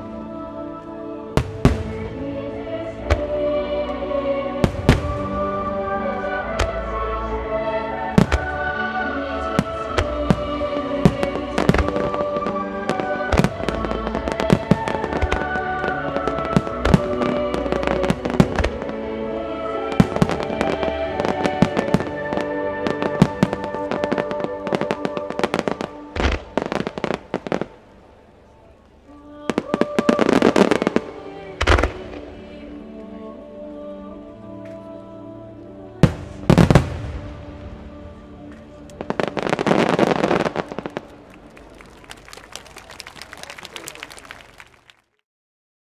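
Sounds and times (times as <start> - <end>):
music playing: 0.0 - 44.8
fireworks bursting: 4.6 - 6.9, 8.1 - 19.0, 38.8 - 44.7
fireworks crackling: 4.6 - 7.4, 8.1 - 27.8, 36.0 - 45.0.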